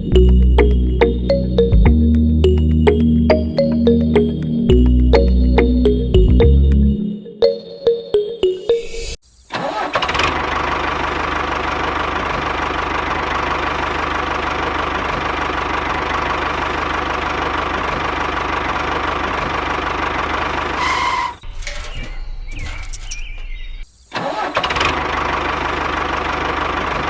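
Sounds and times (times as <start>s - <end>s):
music: 0.0s - 9.2s
engine running with rough drone: 9.9s - 21.3s, 24.6s - 27.0s.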